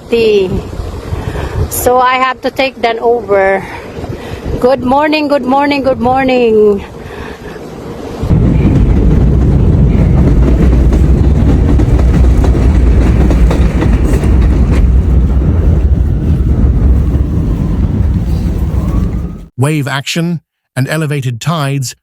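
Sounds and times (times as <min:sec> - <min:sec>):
vehicle rumbling: 0:05.9 - 0:19.5.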